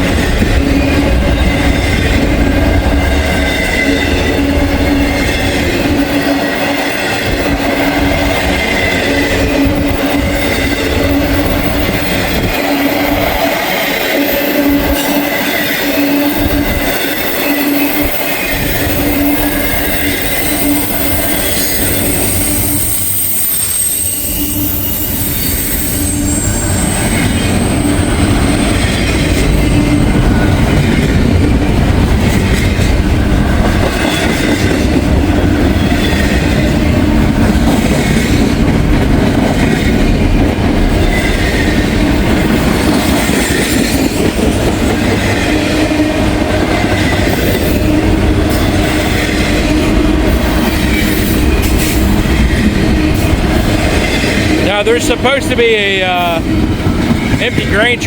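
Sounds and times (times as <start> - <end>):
train wheels clattering on rails: 0.0 - 58.0
high ringing tone: 8.4 - 28.8.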